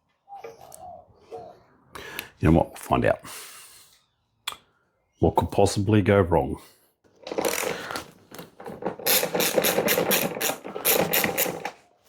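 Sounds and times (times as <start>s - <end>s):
hand tool rasping clicks: 9.1s - 11.7s.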